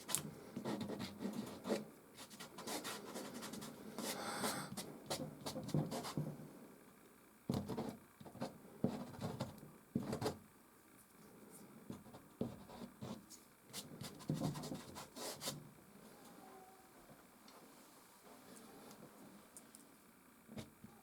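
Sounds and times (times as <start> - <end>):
pastel scratching on canvas: 0.0 - 6.2.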